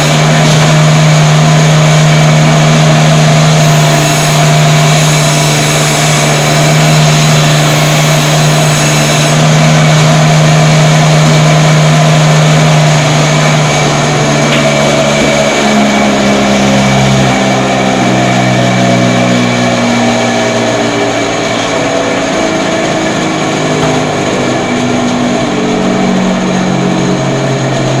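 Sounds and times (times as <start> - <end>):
meat cutting machine motor hum: 0.0 - 28.0.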